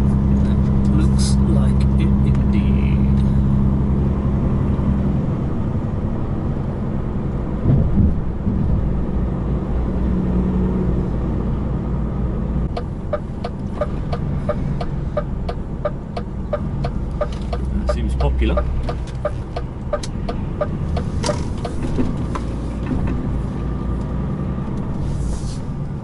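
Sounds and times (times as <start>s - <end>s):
truck diesel engine running: 0.0s - 7.2s, 12.4s - 24.0s
turn indicator ticking: 12.7s - 22.5s.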